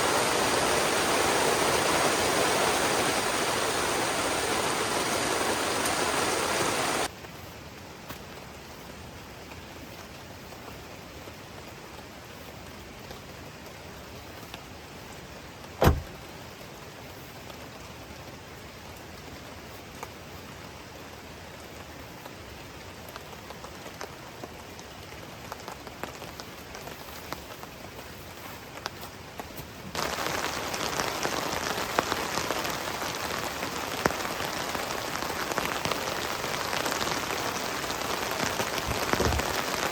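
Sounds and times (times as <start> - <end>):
heavy rain beating on surface: 0.0 - 39.9
rain: 0.0 - 39.9
rushing water: 0.0 - 39.9
sharp knock: 15.8 - 16.1.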